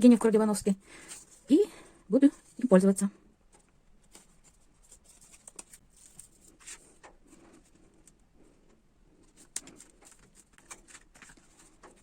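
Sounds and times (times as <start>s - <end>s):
paper and cardboard rustling: 1.0s - 1.6s, 3.5s - 8.2s, 9.1s - 12.0s.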